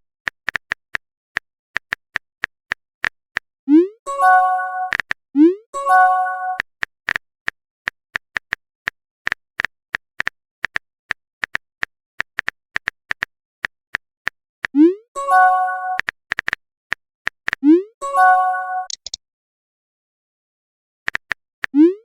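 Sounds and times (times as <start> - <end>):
phone keyboard typing clicks: 18.8 - 19.2.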